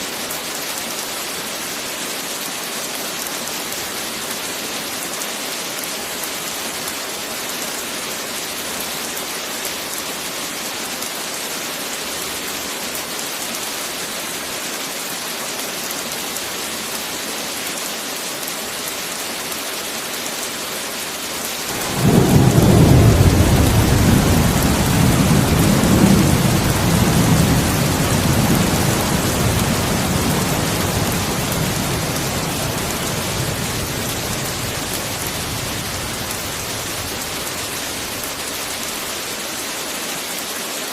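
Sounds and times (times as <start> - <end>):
heavy rain hissing: 20.4 - 40.2
thunder rumbling: 21.7 - 38.4.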